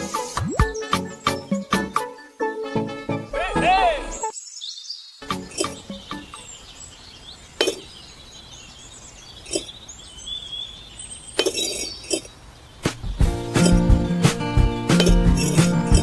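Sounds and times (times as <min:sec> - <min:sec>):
music: 0:00.0 - 0:04.3, 0:05.2 - 0:06.2, 0:12.9 - 0:16.0
faint bird chirps: 0:04.0 - 0:13.2.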